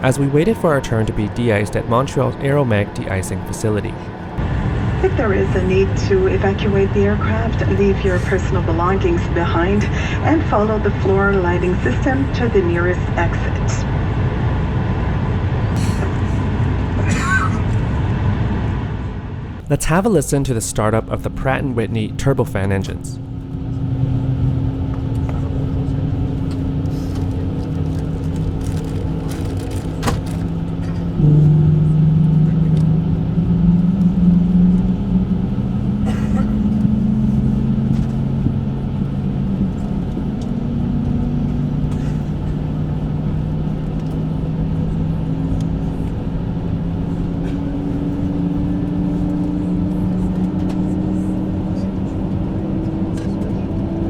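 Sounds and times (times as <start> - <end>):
jet engines spooling up: 0.0 - 7.0.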